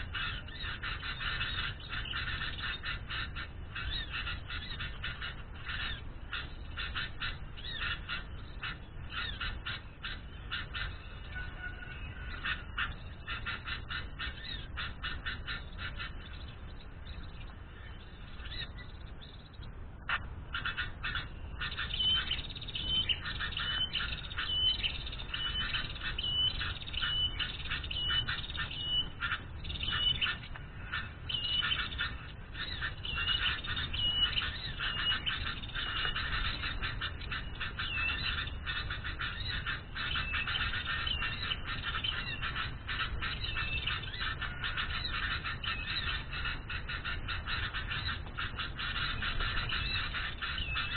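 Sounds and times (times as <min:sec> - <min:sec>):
birds chattering: 0:00.0 - 0:50.9
small birds calling: 0:00.0 - 0:50.9.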